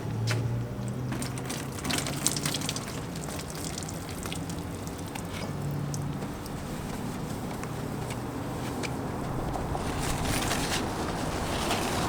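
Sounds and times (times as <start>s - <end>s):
water splashing and trickling: 0.9s - 7.0s.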